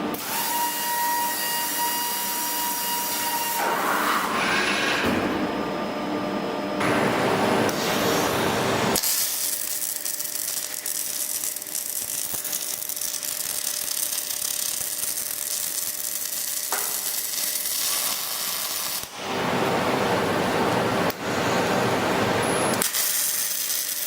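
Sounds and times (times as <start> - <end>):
welding arc hissing and crackling: 6.8 - 24.0.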